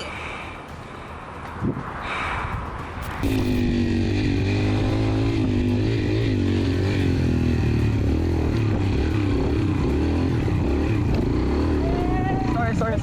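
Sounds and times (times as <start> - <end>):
motorcycle engine revving: 3.0 - 13.0.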